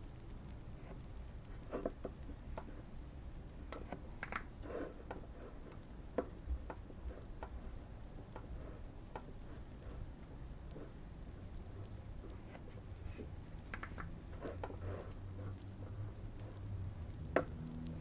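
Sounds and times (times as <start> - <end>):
fire crackling and popping: 0.0 - 12.6.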